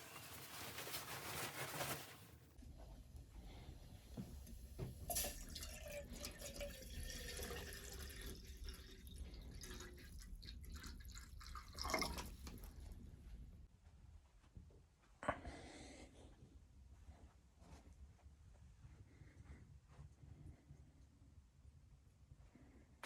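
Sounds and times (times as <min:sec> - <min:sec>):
water dripping and trickling: 0:04.8 - 0:12.9.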